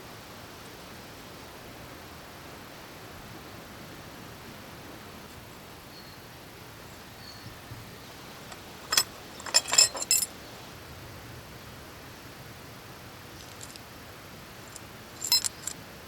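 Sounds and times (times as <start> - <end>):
faint background hiss: 0.0 - 16.0
sharp metallic clinks: 8.5 - 10.3, 15.2 - 15.8.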